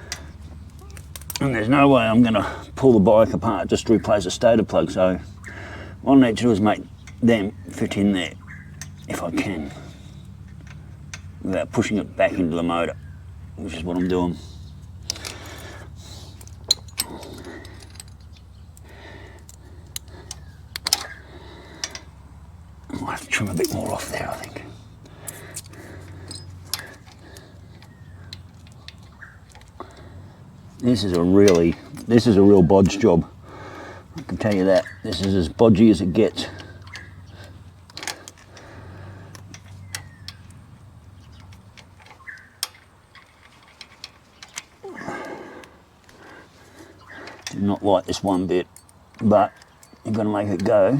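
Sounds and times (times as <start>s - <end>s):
small sharp clicks: 0.0s - 1.6s, 14.0s - 22.9s, 24.4s - 32.1s, 36.5s - 47.6s
rustling of wires: 0.0s - 50.9s
steady low hum: 0.0s - 50.9s
small clicks and taps of hand work: 16.4s - 22.1s.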